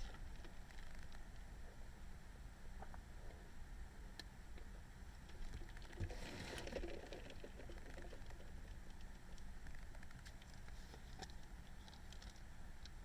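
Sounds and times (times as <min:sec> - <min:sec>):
faint ticks: 0:07.6 - 0:13.0.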